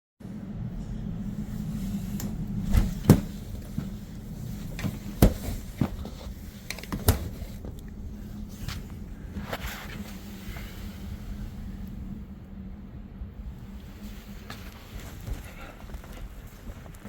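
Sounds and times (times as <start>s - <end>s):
vehicle interior hum: 0.2s - 17.0s
sharp knocks and clunks: 4.8s - 7.4s.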